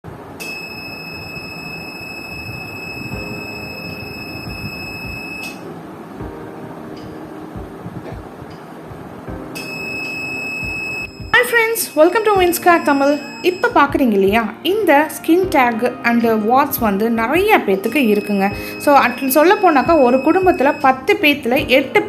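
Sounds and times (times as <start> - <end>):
high-pitched electronic tone: 0.4 - 5.6, 9.6 - 13.8, 17.9 - 21.1.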